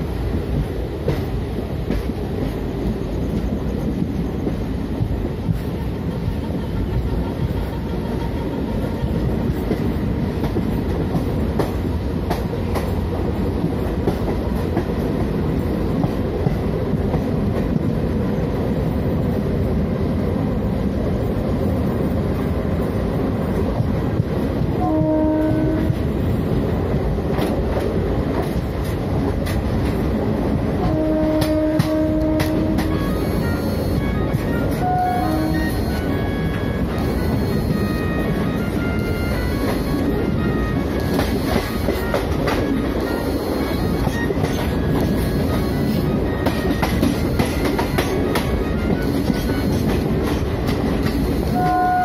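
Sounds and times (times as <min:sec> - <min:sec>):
train rumbling at speed: 0:00.0 - 0:52.0
locomotive horn: 0:24.7 - 0:26.2, 0:30.8 - 0:50.4, 0:51.2 - 0:52.0.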